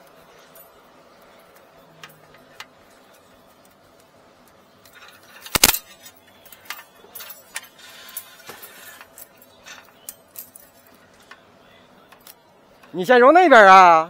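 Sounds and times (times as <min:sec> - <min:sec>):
metallic clicks and clinks: 0:04.4 - 0:11.4.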